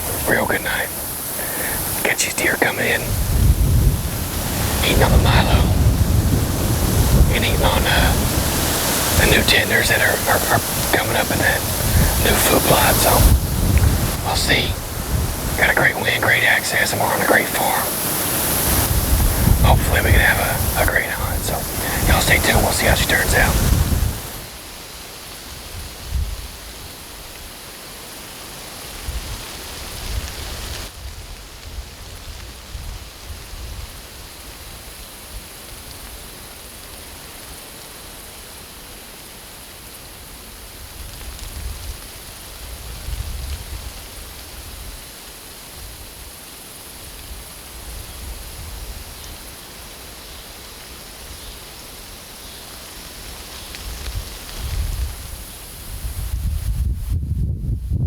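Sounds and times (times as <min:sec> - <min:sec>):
wind buffeting microphone: 0:00.0 - 0:24.5, 0:42.6 - 0:45.0, 0:53.8 - 0:58.0
low rumbles: 0:03.0 - 0:16.3.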